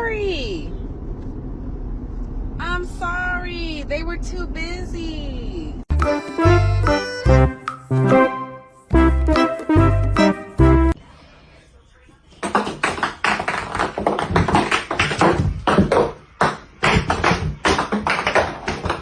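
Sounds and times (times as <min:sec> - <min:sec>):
rapid uneven tapping and clicking: 0:12.4 - 0:19.0.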